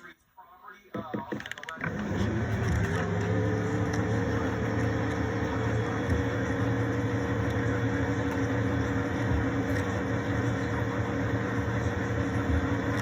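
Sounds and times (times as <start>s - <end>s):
machine hum and whirring: 1.0s - 13.0s.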